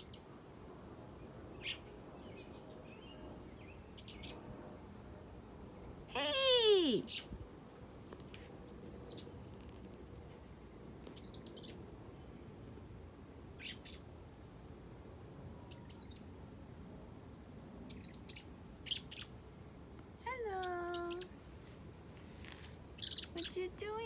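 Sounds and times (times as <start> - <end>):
fledgling bird chirping: 8.7 - 9.3, 11.2 - 11.8, 13.6 - 14.0, 15.7 - 16.3, 17.9 - 19.4, 20.6 - 21.3, 23.0 - 23.6.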